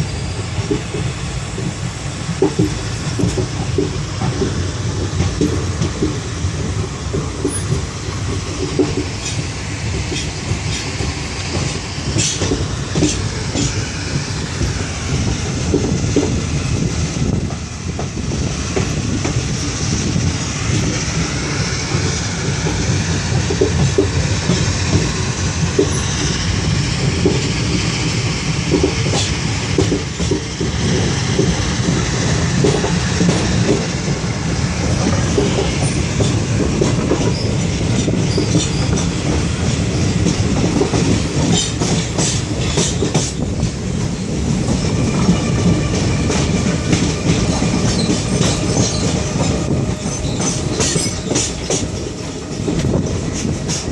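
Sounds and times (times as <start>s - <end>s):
train rumbling on track: 0.0s - 53.9s
wheels clacking over rail joints: 0.4s - 53.9s.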